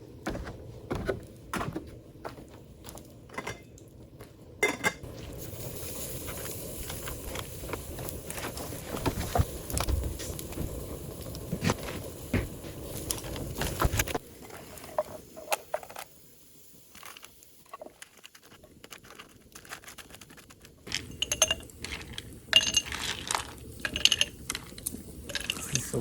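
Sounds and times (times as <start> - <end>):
small hard objects clinking: 16.9 - 25.8.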